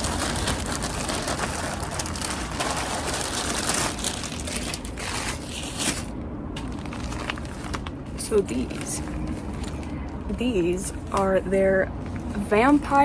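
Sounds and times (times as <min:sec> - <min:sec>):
packaging crinkling and rustling: 0:00.0 - 0:10.2.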